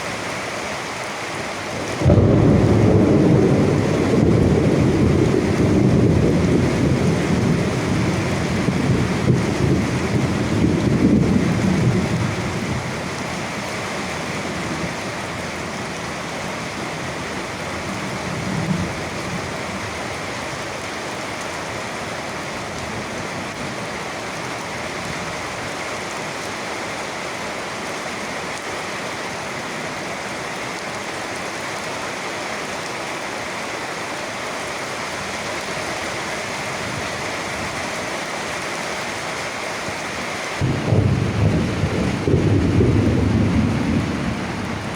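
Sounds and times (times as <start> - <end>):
steady rain falling: 0.0 - 44.9
low thunder rumble: 1.8 - 13.4, 40.6 - 44.9.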